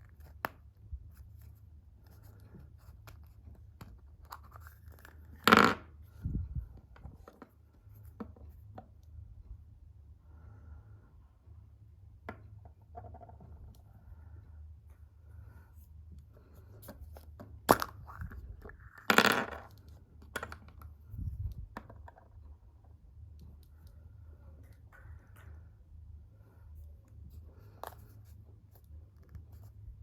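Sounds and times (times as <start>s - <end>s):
steady low hum: 5.9s - 19.0s.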